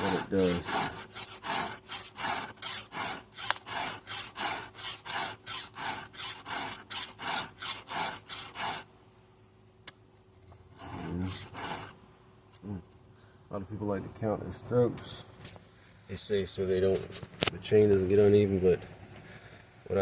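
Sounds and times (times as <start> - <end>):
file rasping on chain teeth: 0.0 - 8.9, 10.8 - 12.0.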